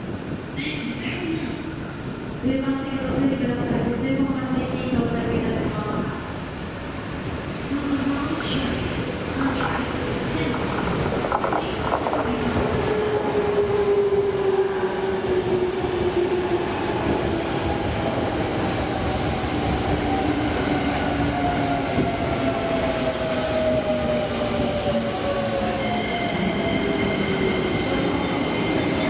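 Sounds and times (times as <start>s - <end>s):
train wheels rumbling on rails: 4.6s - 29.0s.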